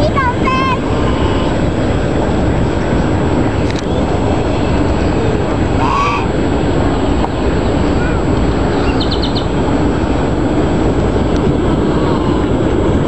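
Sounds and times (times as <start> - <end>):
low rumbling noise: 0.0 - 13.0
goose honking: 5.8 - 6.3.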